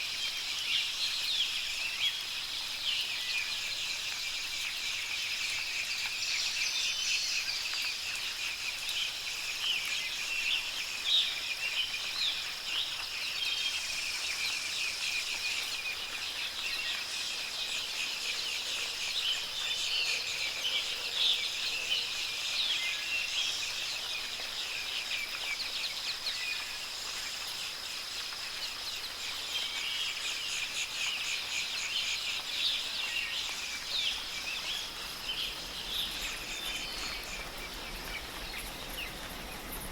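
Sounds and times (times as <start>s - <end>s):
small birds chirping: 2.9s - 39.9s.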